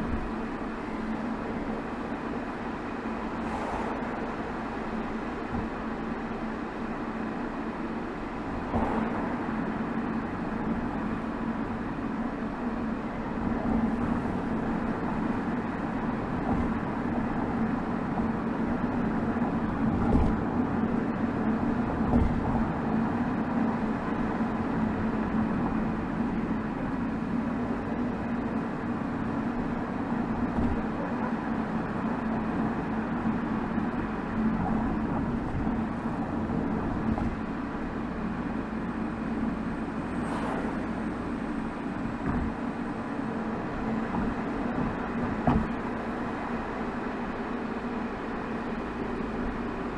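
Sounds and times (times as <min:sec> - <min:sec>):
diesel exhaust drone: 0:00.0 - 0:49.9
road and tyre noise: 0:00.0 - 0:49.9.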